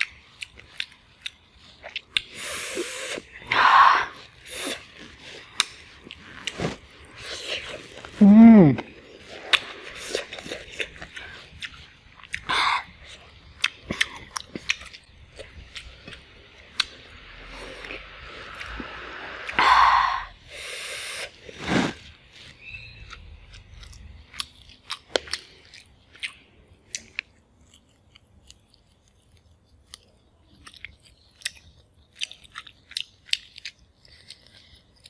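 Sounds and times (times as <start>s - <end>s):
chewing and biting food: 0.0s - 8.2s, 8.8s - 19.6s, 21.3s - 35.0s
crunching or rustling: 4.2s - 8.2s
mouth clicks of chewing: 23.0s - 35.0s.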